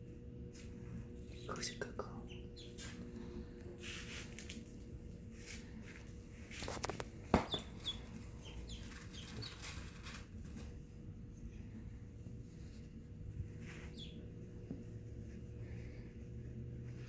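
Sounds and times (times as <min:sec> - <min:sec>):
ducklings peeping: 0:01.3 - 0:03.4, 0:06.7 - 0:10.7, 0:13.5 - 0:14.5.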